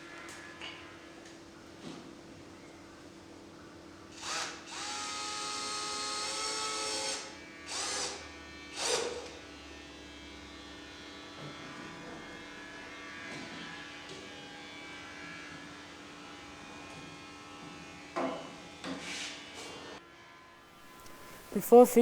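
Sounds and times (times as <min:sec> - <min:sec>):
electric drill driving screws: 0:04.1 - 0:09.4.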